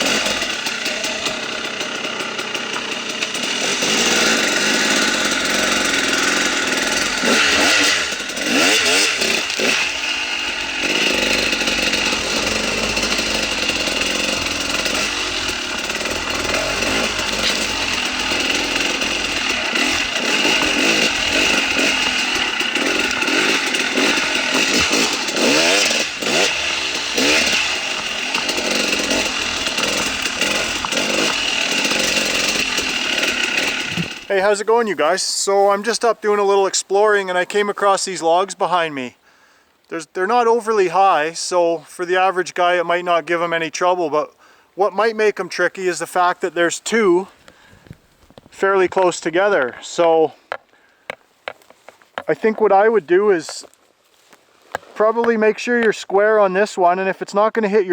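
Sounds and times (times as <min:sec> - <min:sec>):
two-stroke motorcycle engine revving: 0:00.0 - 0:34.9.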